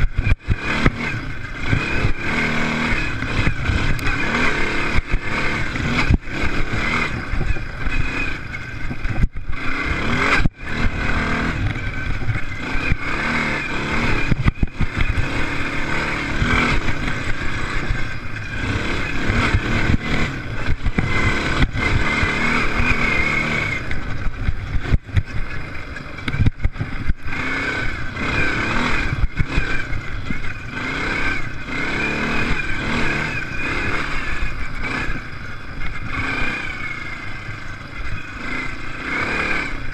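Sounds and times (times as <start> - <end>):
racing engines revving: 0.0 - 39.9.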